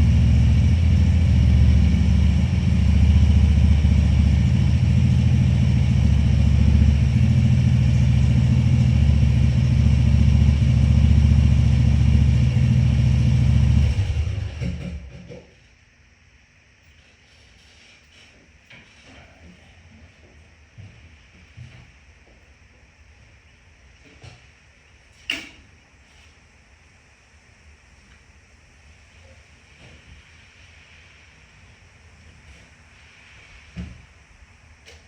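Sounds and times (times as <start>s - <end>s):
tractor engine running: 0.0s - 15.2s.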